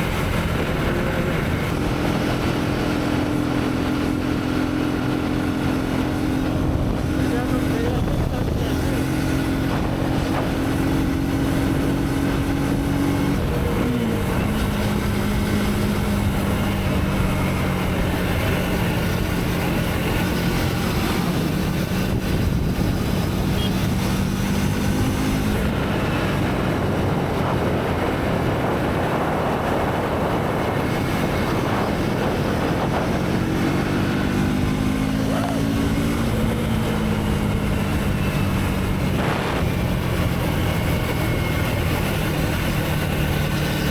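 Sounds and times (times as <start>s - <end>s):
motorcycle engine running: 0.0s - 43.9s
road noise: 0.0s - 43.9s
wind noise: 0.0s - 43.9s.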